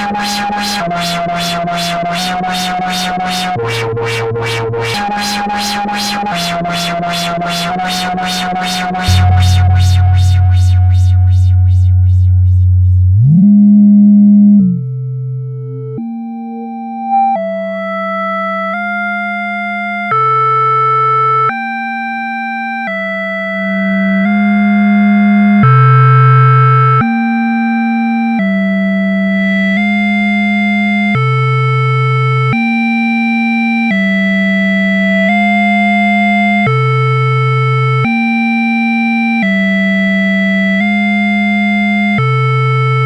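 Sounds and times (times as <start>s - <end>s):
synthesizer sequence: 0.0s - 15.1s
deep synth bass note: 0.0s - 16.2s.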